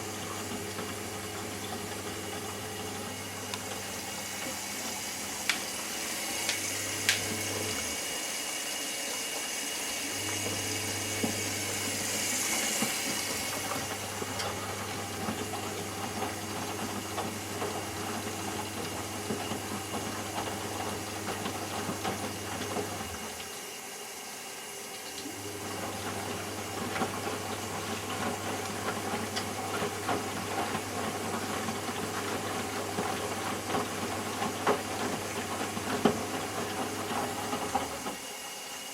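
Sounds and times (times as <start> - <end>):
water running in with a hiss: 0.0 - 31.1
washing machine motor humming: 0.0 - 38.9.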